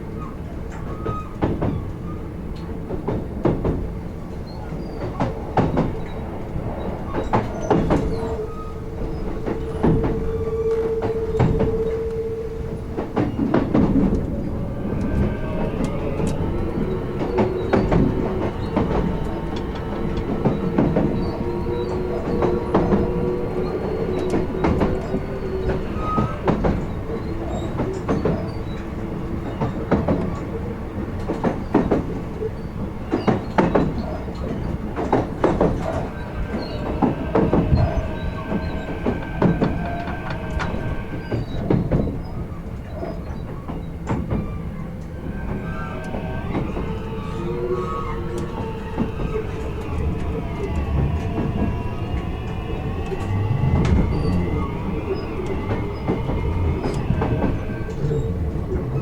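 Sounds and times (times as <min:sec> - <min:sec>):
steady train rumble: 0:00.0 - 0:59.0
train wheels clicking over rail joints: 0:00.0 - 0:59.0
traction motor whining: 0:34.1 - 0:59.0.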